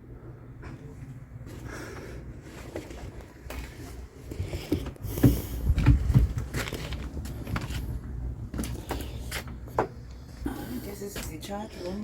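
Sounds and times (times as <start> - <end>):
steady low rumble: 0.0 - 12.0
footsteps on wooden boat floor: 2.5 - 10.4
heavy thuds: 4.4 - 10.0.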